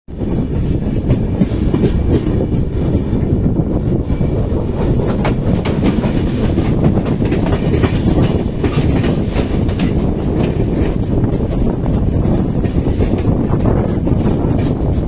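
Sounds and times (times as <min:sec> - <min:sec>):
train rumbling along track: 0:00.1 - 0:15.0
train wheel clicks: 0:04.7 - 0:15.0.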